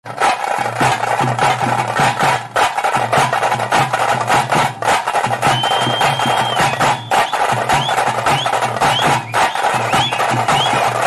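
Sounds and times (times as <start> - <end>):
drums struck rapidly with sticks: 0.0 - 11.0
high steady whistle: 5.4 - 11.0.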